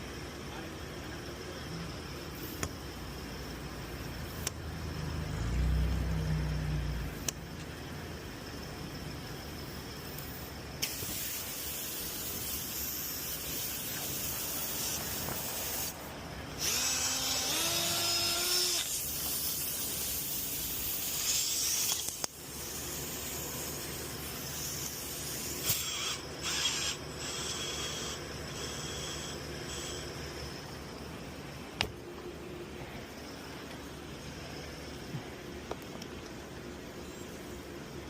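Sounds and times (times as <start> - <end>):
compressed air hissing: 2.4 - 2.7, 10.0 - 30.1
small motor whining: 16.6 - 30.2.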